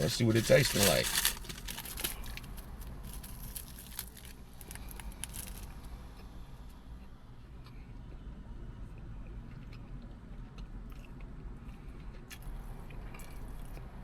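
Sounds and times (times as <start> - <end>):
person chewing crunchy food: 0.0 - 6.3, 9.2 - 14.0.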